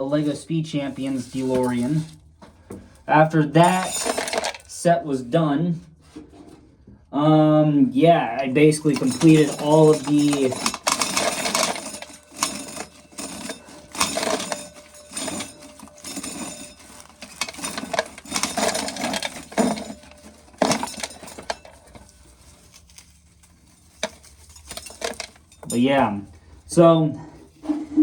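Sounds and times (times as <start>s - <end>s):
corn kernels rattling into container: 0.2s - 2.1s, 3.6s - 4.8s, 8.4s - 26.0s.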